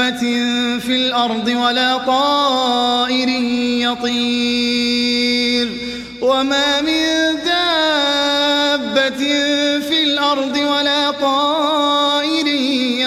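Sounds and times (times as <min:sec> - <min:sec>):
man reciting melodically: 0:00.0 - 0:13.0
breath: 0:05.8 - 0:06.2.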